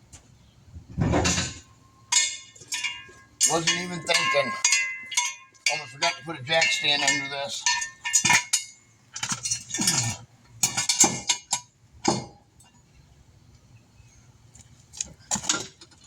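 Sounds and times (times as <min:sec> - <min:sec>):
metal jack stand clanking and scraping: 0:01.0 - 0:12.4.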